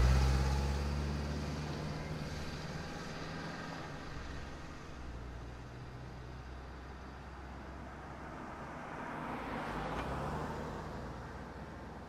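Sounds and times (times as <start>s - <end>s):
vehicle passing by: 0.0s - 4.8s
low rumble of traffic: 0.0s - 12.0s.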